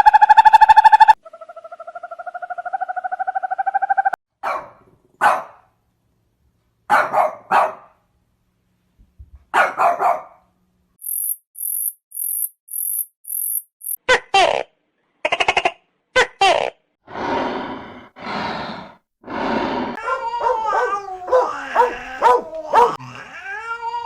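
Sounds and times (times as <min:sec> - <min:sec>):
animal barking: 0:20.0 - 0:23.1.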